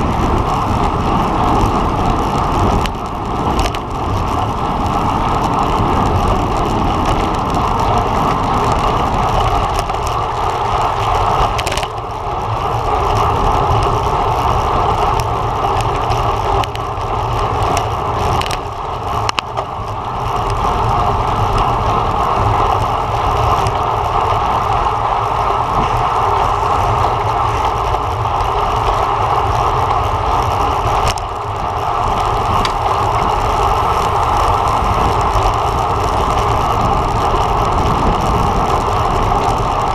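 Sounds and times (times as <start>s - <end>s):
bicycle road noise: 0.0s - 39.9s
wind rushing: 30.7s - 39.9s.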